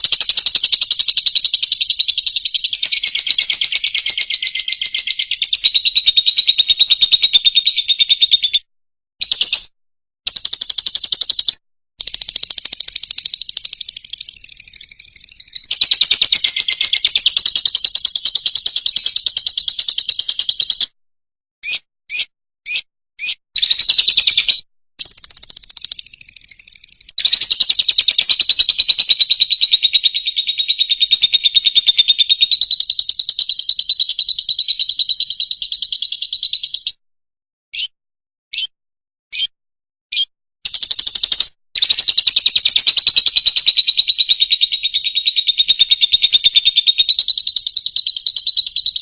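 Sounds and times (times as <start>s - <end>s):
lovebird singing high trills: 0.0s - 8.5s, 10.3s - 20.8s, 40.1s - 49.0s
bird chirps: 0.0s - 21.0s, 21.6s - 37.0s, 37.7s - 37.9s, 38.5s - 38.7s, 39.3s - 39.5s, 40.1s - 49.0s.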